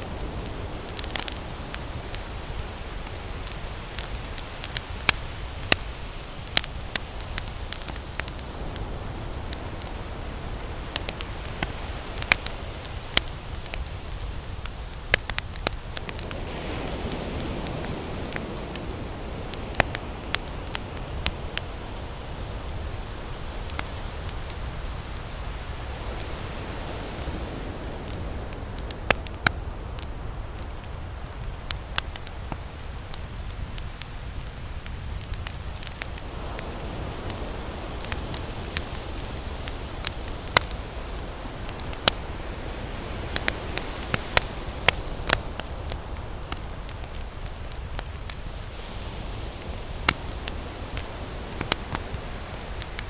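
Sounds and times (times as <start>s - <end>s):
surf rushing: 0.0s - 30.7s
campfire crackling: 0.0s - 53.0s.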